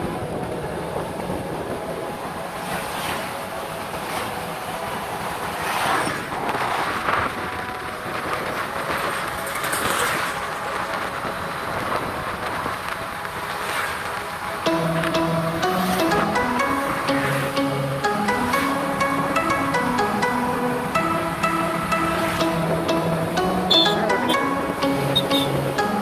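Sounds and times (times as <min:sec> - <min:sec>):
moving vehicle rumble and rattle: 0:00.0 - 0:14.6.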